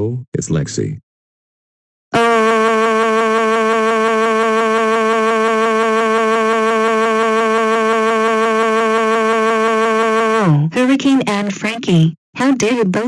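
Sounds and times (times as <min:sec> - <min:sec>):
steady electronic tone: 0:02.2 - 0:10.6.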